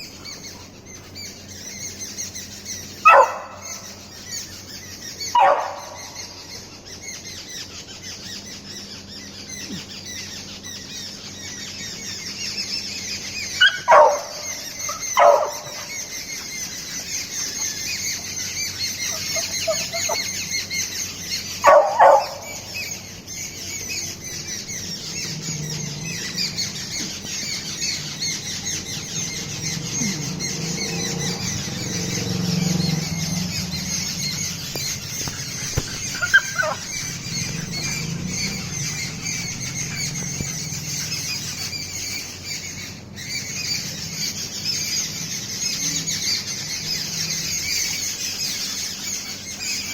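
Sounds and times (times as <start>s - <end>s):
puppy yelping: 3.0s - 3.9s, 5.3s - 6.3s, 13.5s - 16.2s, 18.9s - 20.6s, 21.5s - 23.0s, 29.6s - 41.7s
puppy whining: 19.0s - 20.4s, 29.6s - 41.3s.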